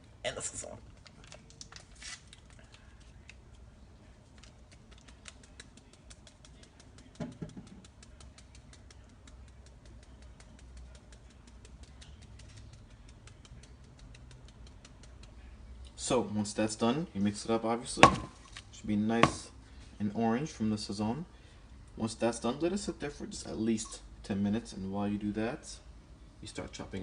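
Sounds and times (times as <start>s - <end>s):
seasoning shaker ticking: 4.4s - 15.6s.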